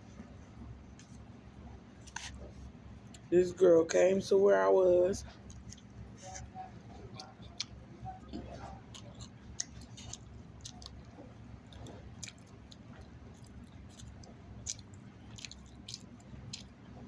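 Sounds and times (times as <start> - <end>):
person chewing food: 5.2 - 17.0.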